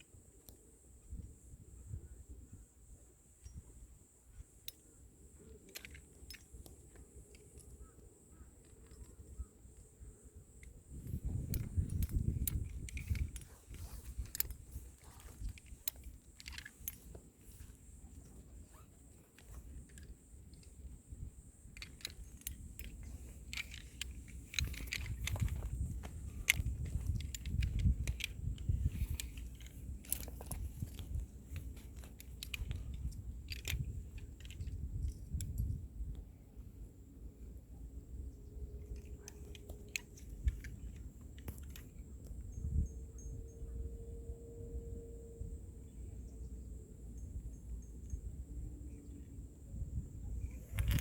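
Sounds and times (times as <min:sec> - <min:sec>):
metal climbing gear clinking: 0:02.6 - 0:51.0
rough rustling and scuffing: 0:10.9 - 0:34.9.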